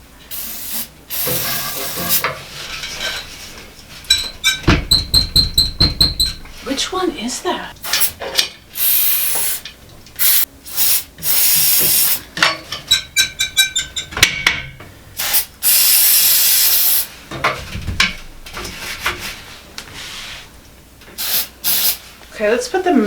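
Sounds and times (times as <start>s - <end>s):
spray can hissing: 0.3s - 2.2s, 7.8s - 8.2s, 8.8s - 9.6s, 10.2s - 12.2s, 15.2s - 17.1s, 21.2s - 22.0s.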